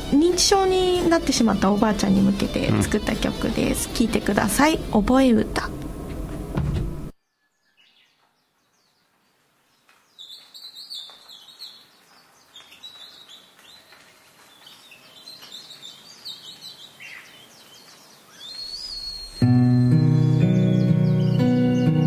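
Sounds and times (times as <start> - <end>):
birds chirping: 0.0 - 4.8, 7.1 - 22.0
music with sustained notes: 0.0 - 5.0, 19.4 - 22.0.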